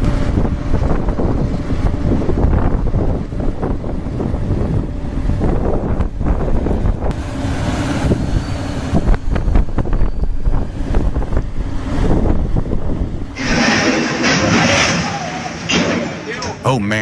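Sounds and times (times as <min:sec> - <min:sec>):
wind buffeting microphone: 0:00.0 - 0:14.0
heavy machinery rumbling: 0:00.0 - 0:16.8.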